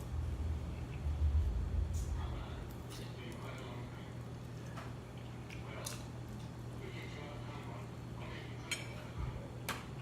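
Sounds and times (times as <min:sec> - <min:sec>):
steady low hum: 0:00.0 - 0:10.0
utensil clinking on a plate: 0:08.5 - 0:10.0.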